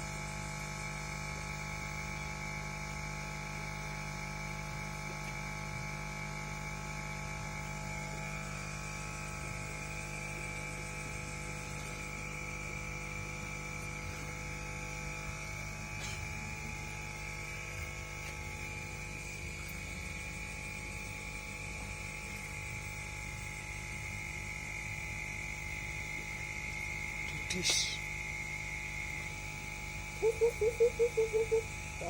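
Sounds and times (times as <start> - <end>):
steady hum: 0.0 - 32.0
high whine: 25.0 - 32.0.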